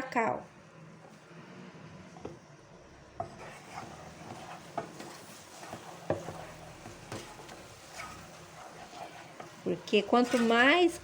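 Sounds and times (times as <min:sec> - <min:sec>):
faint sizzle: 0:00.0 - 0:11.0
utensil scraping a saucepan: 0:03.2 - 0:11.0.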